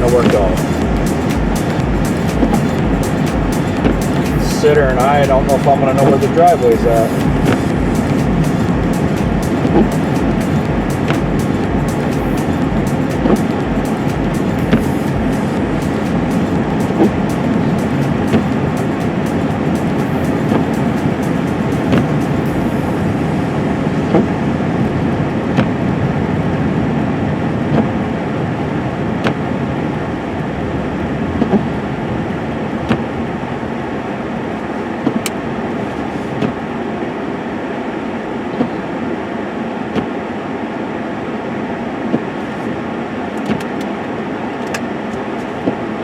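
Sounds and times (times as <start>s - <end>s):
truck road and engine noise: 0.0s - 25.1s.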